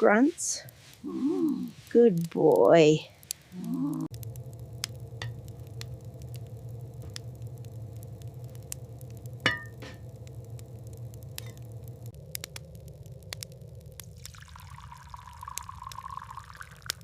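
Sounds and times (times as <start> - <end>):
fire crackling and popping: 0.0 - 17.0
low rumble: 3.4 - 16.0.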